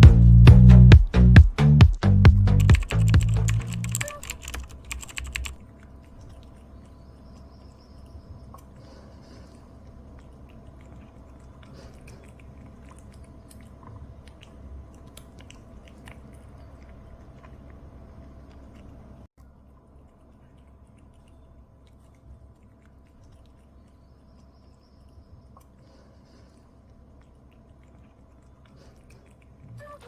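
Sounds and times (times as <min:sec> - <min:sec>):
background music: 0:00.0 - 0:04.2
cat chewing crunchy treat: 0:08.5 - 0:24.8, 0:25.4 - 0:29.7.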